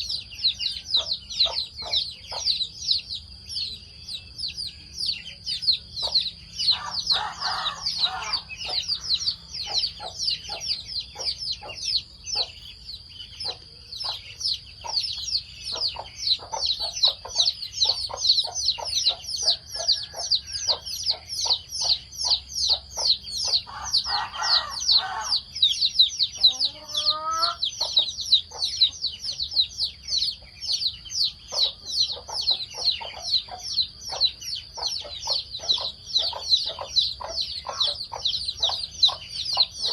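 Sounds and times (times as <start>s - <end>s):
chickens clucking: 0.0s - 39.9s
high-pitched chick peeping: 0.0s - 39.9s
chickens pecking: 26.4s - 39.9s.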